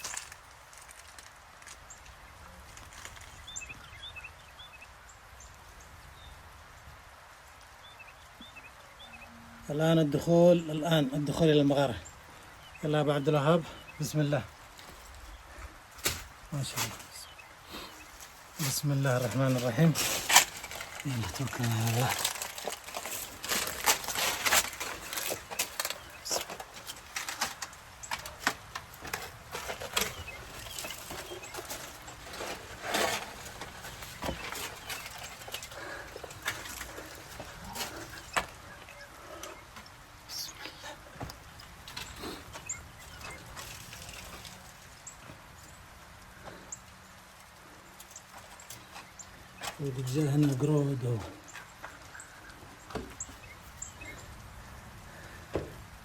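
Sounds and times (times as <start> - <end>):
footsteps crunching on stones: 0.0 - 3.9, 14.0 - 45.5
outdoor hiss: 0.0 - 56.0
small birds chirping: 1.6 - 6.6, 7.3 - 56.0.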